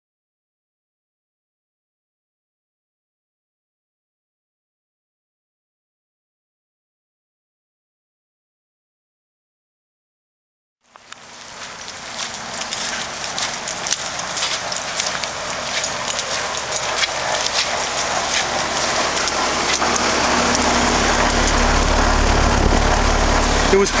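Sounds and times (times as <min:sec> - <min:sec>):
raindrops ticking: 0:10.8 - 0:24.0
heat pump humming: 0:10.9 - 0:24.0
rain falling: 0:10.9 - 0:24.0.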